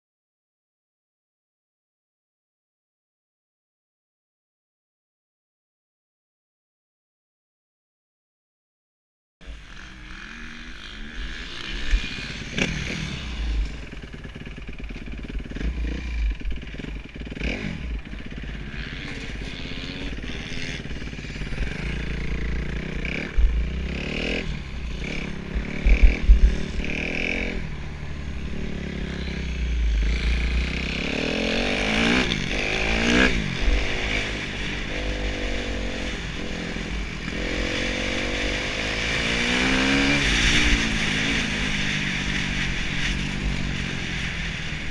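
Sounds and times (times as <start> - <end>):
motocross engine revving: 9.4 - 44.9.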